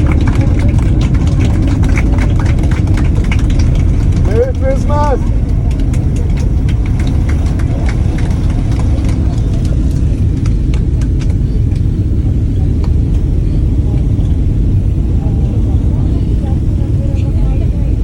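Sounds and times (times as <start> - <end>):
passengers clapping: 0.0 - 14.2
airplane cabin low rumble: 0.0 - 18.0.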